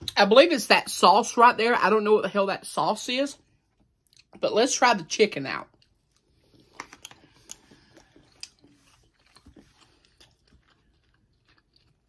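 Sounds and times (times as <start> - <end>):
person chewing food: 3.5 - 4.4, 5.7 - 12.0.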